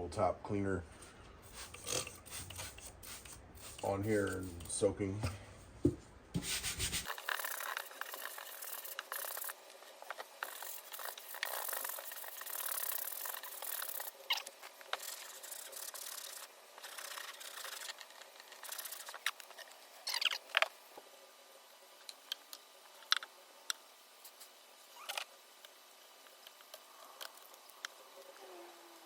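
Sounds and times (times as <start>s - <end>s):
scrubbing on wooden panel: 6.4s - 7.5s.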